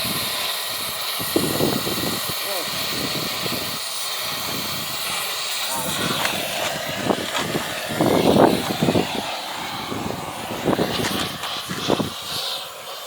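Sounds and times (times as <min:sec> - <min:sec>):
machine engine running: 0:04.3 - 0:12.7.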